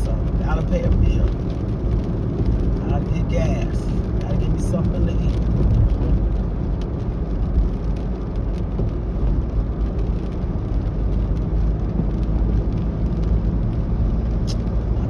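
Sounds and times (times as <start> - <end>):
road and engine drone in truck cab: 0.0 - 15.0.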